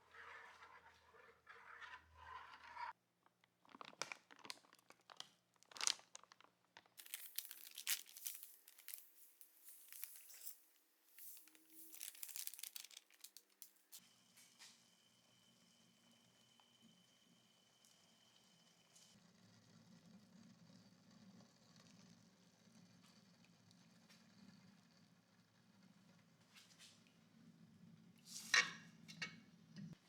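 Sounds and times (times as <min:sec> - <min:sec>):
scraping and rustling: 0:07.0 - 0:14.0.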